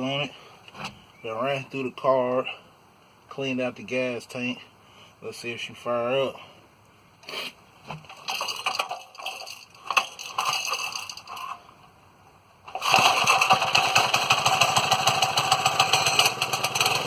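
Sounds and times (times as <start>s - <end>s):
small engine running: 12.7s - 17.0s
small engine starting attempts: 12.7s - 17.0s.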